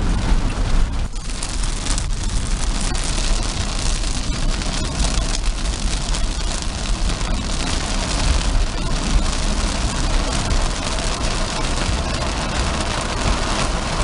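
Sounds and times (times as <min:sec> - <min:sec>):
rain hitting car: 0:00.0 - 0:14.0
road and tyre rumble: 0:00.0 - 0:14.0.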